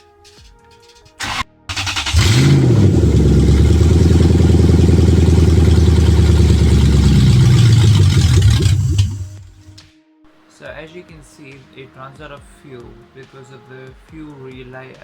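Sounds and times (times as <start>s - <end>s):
car engine starting and idling: 1.2s - 9.8s.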